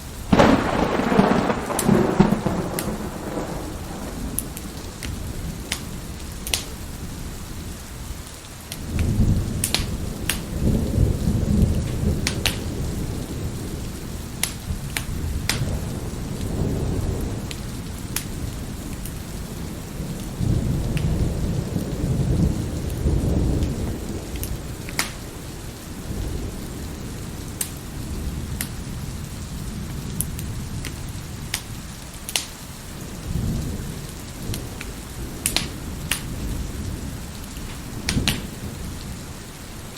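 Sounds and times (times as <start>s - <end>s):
wood fire crackling: 0.0s - 39.4s
steady rain: 0.0s - 39.9s
thunder rolling: 0.3s - 6.1s.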